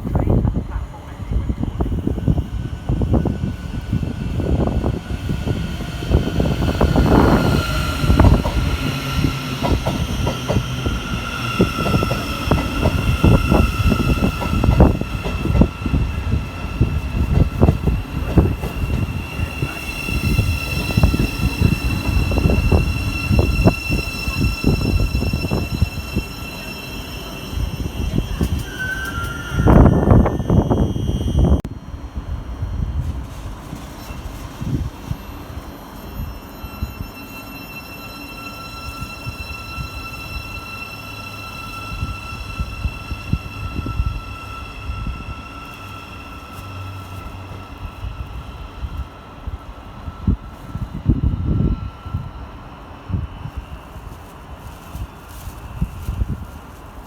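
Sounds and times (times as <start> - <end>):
train rumbling and knocking: 0.0 - 57.0
high-pitched whine: 1.4 - 52.3.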